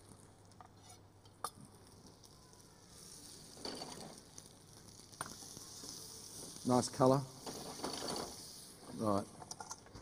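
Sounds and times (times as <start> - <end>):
fish sizzling in a pan: 1.6 - 9.2.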